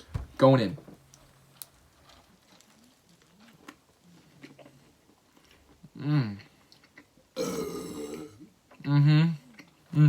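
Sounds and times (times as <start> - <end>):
person chewing food: 1.5 - 8.8.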